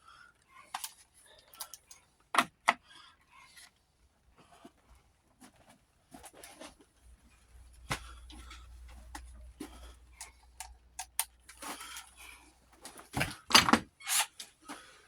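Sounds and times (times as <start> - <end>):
clicks of metal parts and tools: 0.7 - 2.8, 9.1 - 12.2, 12.8 - 14.8.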